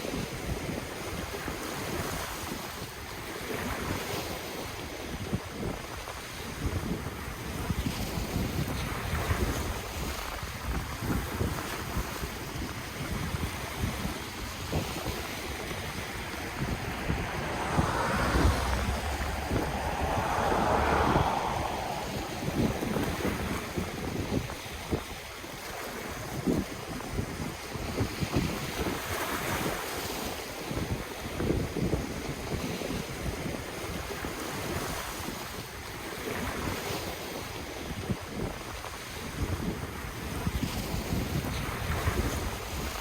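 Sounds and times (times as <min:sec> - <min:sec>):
wind buffeting microphone: 0:05.2 - 0:29.8
ocean waves washing on shore: 0:11.2 - 0:30.2.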